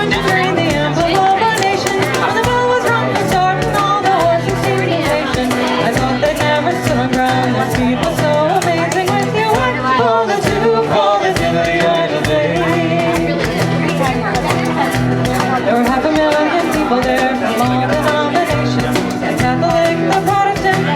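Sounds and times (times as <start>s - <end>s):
folk music on acoustic instruments: 0.0s - 20.9s.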